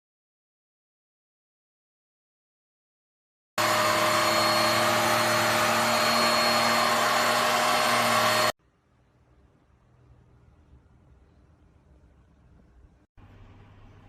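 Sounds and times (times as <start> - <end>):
vacuum cleaner high whine: 3.6 - 8.6.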